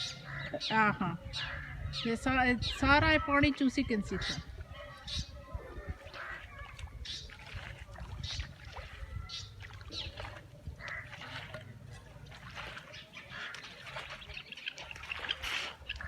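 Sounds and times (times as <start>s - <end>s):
wind rumble on microphone: 1.0s - 11.1s
splashes in standing water: 5.9s - 16.0s.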